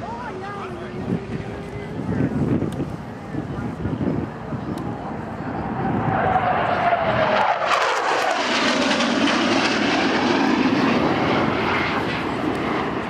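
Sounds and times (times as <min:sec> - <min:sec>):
jet engine roaring: 0:00.0 - 0:13.0.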